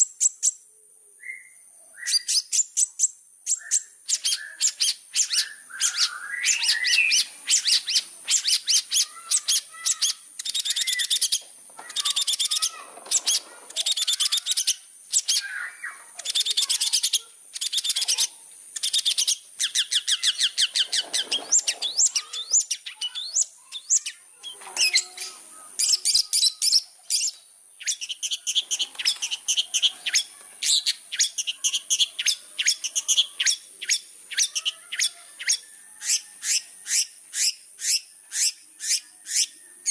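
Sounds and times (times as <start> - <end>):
shrike singing: 1.2 - 39.9
harsh bird chattering: 2.0 - 39.9.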